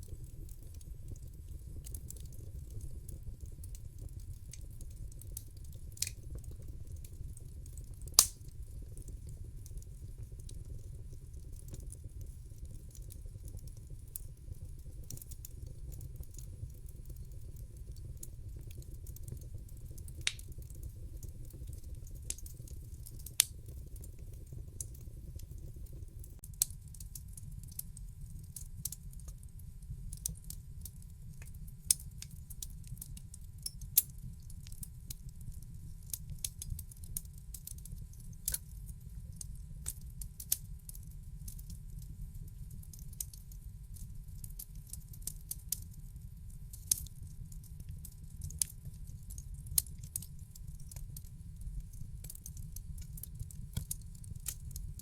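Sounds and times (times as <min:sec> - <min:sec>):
fire popping and crackling: 0:00.0 - 0:29.5, 0:30.1 - 0:45.7, 0:46.8 - 0:55.0
fireplace flames rumbling: 0:00.0 - 0:33.4, 0:34.5 - 0:40.8, 0:46.8 - 0:55.0.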